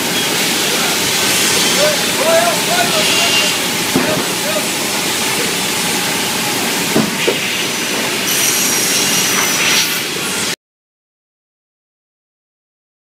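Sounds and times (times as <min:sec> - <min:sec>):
cross-cut saw machine hissing: 0:00.0 - 0:10.6
high thin whine: 0:00.0 - 0:10.6
saw knocks: 0:06.9 - 0:07.4.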